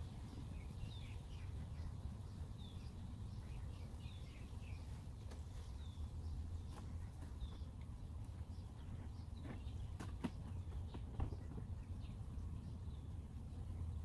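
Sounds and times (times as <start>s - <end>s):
low outdoor rumble: 0.0s - 14.0s
small birds chirping: 0.0s - 14.0s.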